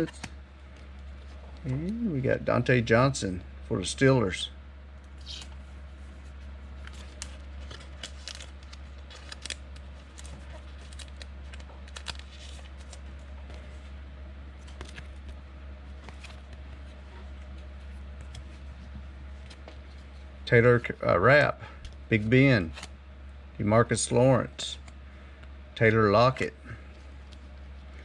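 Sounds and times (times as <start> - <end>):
cards being flipped through: 0.0 - 0.8, 5.1 - 5.6, 6.8 - 13.9, 14.6 - 20.1, 22.6 - 22.9
low hum: 0.0 - 28.0.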